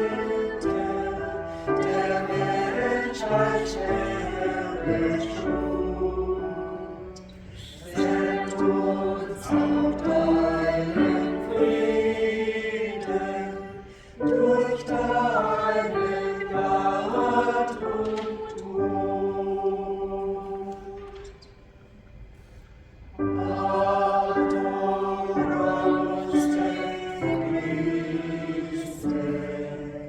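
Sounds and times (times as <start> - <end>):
church choir singing: 0.0 - 22.1, 23.1 - 30.0.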